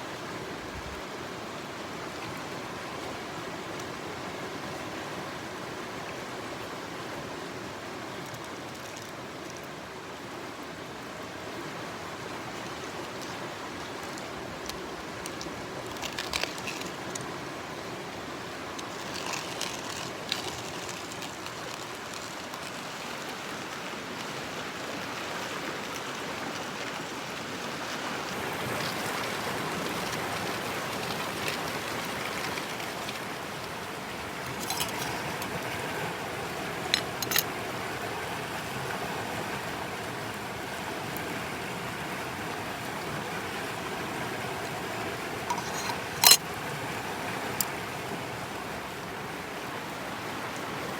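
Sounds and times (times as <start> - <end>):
stream flowing: 0.0 - 50.9.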